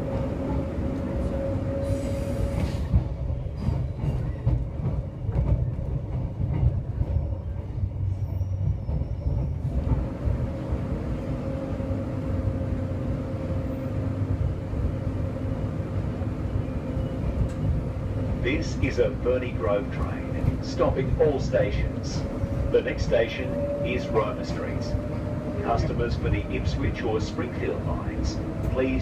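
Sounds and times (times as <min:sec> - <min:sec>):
wheels rumbling on rail: 0:00.0 - 0:29.0
clacks over rails: 0:02.6 - 0:07.9.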